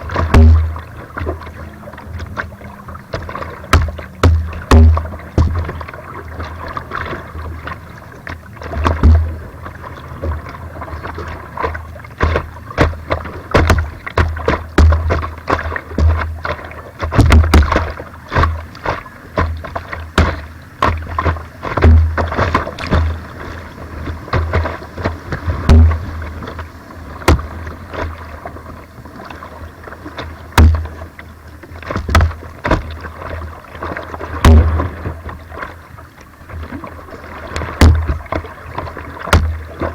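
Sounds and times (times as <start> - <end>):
paddle splashes and knocks: 0.0 - 39.9
rushing water: 0.0 - 39.9
heavy low thumps: 3.7 - 5.8, 21.8 - 23.2, 25.5 - 26.4.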